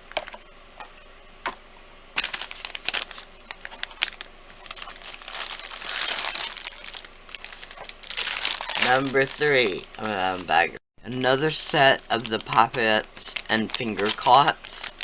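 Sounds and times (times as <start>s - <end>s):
plastic bag crinkling: 2.2s - 10.5s, 11.5s - 15.0s.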